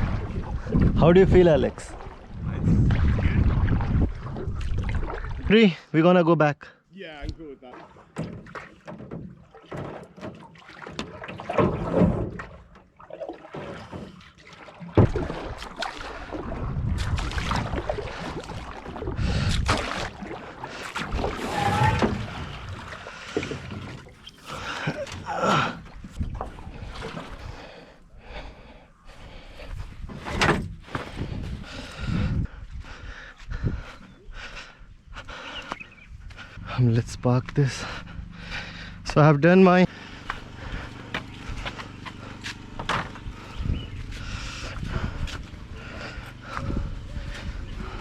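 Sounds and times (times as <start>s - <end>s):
paddle strokes in water: 0.0s - 5.5s, 7.2s - 36.8s, 39.9s - 48.0s
paddle knocking against hull: 7.2s - 27.7s, 30.0s - 32.1s, 40.2s - 48.0s.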